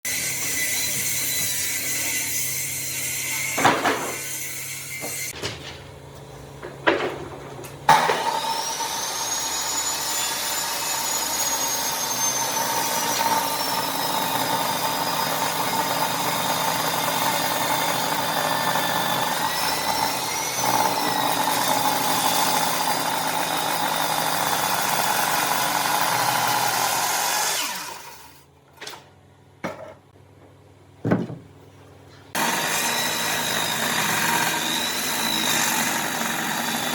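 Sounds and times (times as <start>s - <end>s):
woodworking power tool whining: 7.9s - 28.5s, 32.4s - 36.9s
sharp knocks: 31.0s - 31.5s.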